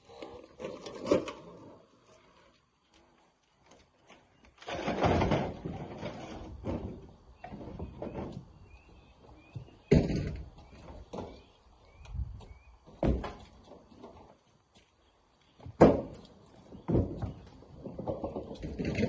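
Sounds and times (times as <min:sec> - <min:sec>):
rocks scraping and clattering: 0:00.0 - 0:03.1, 0:03.7 - 0:08.4, 0:16.1 - 0:19.0.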